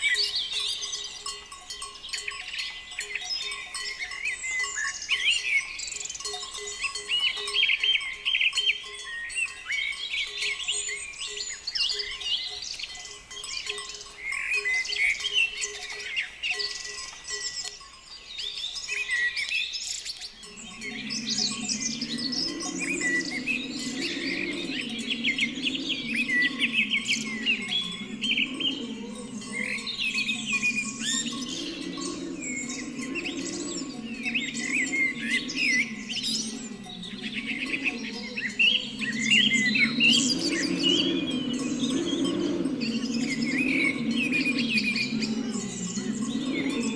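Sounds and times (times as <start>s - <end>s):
small birds chirping: 0.0s - 46.9s
low wavering hum: 20.4s - 46.9s.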